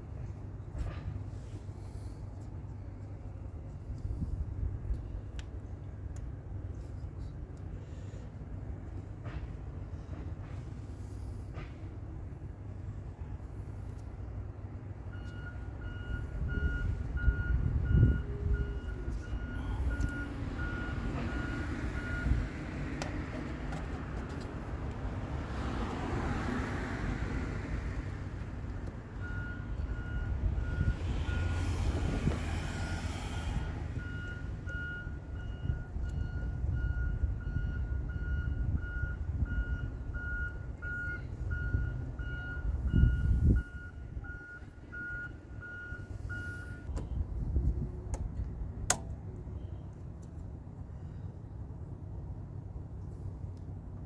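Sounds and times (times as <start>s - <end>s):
low engine rumble: 0.0s - 54.0s
truck reversing alarm beeps: 15.1s - 22.8s, 29.2s - 47.2s
hiss: 31.4s - 33.9s.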